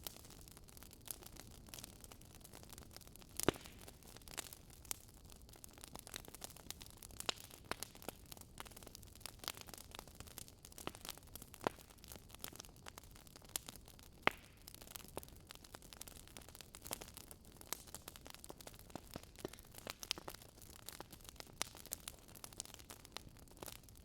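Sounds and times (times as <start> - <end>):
wood fire crackling: 0.0 - 24.0
sharp pops of fire: 3.3 - 5.0, 13.5 - 15.0, 16.8 - 23.8.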